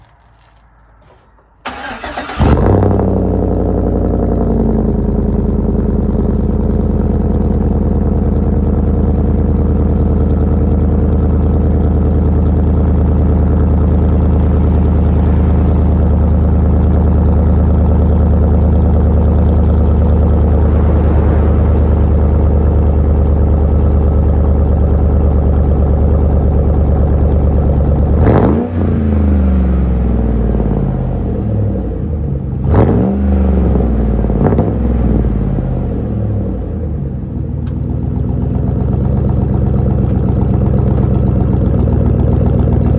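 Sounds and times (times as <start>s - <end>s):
car engine starting and idling: 0.0s - 42.9s
engine revving: 1.1s - 6.1s, 12.8s - 25.1s, 28.0s - 36.5s.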